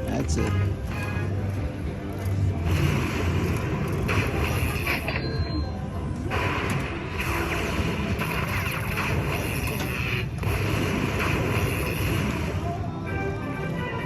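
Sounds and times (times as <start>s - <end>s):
electronic slot machine music: 0.0s - 6.2s, 11.4s - 14.0s.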